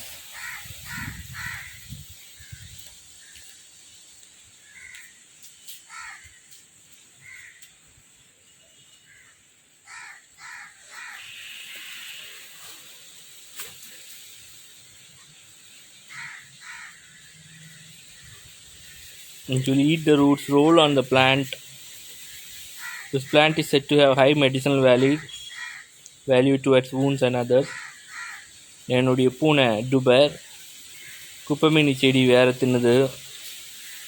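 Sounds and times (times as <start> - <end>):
crows cawing: 0.3 - 3.6, 4.6 - 5.2, 5.9 - 6.6, 7.2 - 7.8, 9.0 - 12.8, 16.0 - 19.4, 21.8 - 23.6, 24.8 - 26.1, 27.5 - 28.8, 30.4 - 31.4.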